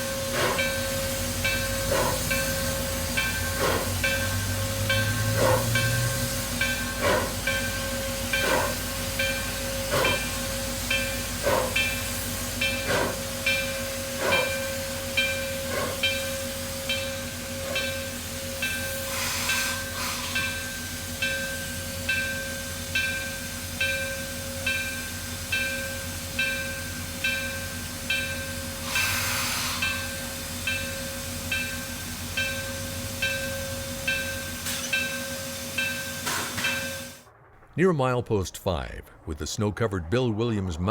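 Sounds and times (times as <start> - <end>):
steam hissing: 0.0 - 37.2
steam locomotive exhaust beats: 0.0 - 40.9.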